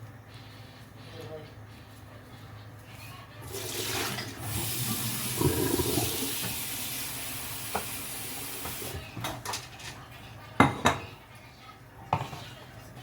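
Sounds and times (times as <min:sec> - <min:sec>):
tap water running into sink: 0:03.5 - 0:09.0.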